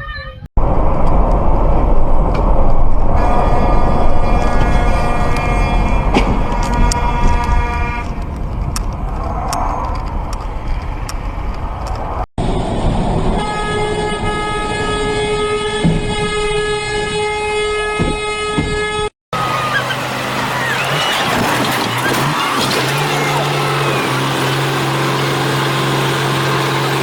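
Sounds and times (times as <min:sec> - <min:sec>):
road traffic noise: 0:00.6 - 0:27.0
vehicle horn steady tone: 0:03.1 - 0:08.2, 0:13.4 - 0:27.0.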